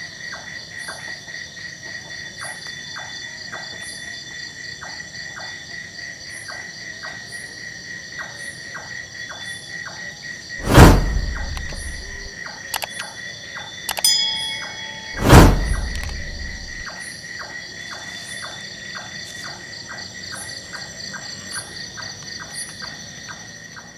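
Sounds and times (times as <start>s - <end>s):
brief squeal: 10.6s - 12.3s, 14.0s - 16.8s
loud sudden crack: 10.6s - 12.3s, 15.2s - 16.8s.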